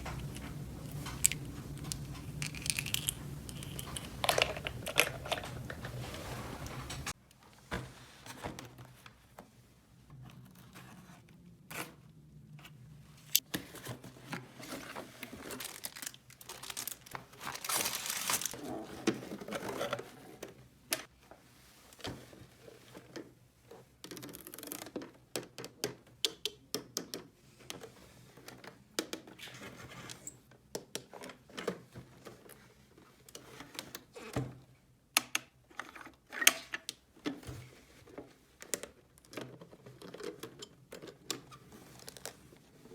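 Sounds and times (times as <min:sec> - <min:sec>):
packaging crinkling and tearing: 0:00.3 - 0:05.9, 0:15.4 - 0:18.6
plastic toy pieces clicking: 0:01.1 - 0:05.4.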